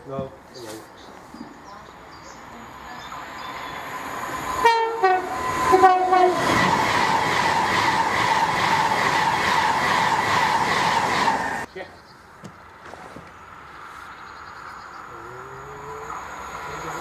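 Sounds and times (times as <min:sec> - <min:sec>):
train wheel and rail rush: 0:01.4 - 0:11.7, 0:15.1 - 0:17.0
train horn blasts: 0:04.5 - 0:06.6.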